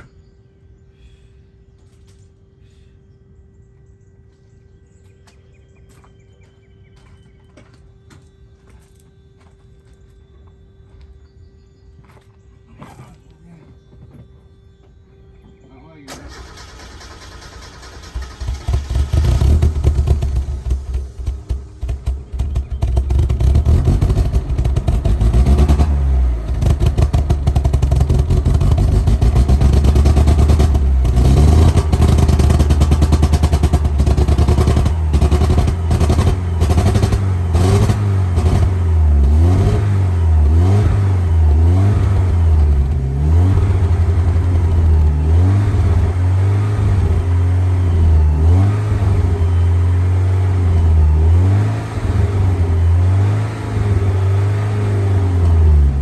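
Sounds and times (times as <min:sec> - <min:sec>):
car engine revving in blips: 0:16.2 - 0:56.0.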